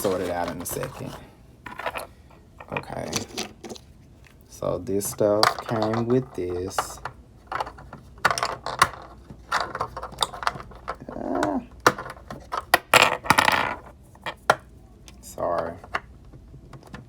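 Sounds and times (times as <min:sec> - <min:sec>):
plastic toys clinking: 0:01.7 - 0:03.9, 0:05.0 - 0:11.1
plastic rattle: 0:05.0 - 0:11.0.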